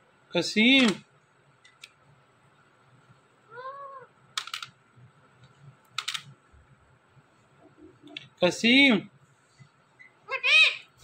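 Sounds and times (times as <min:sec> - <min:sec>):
parrot meow-like call: 0:03.5 - 0:04.1.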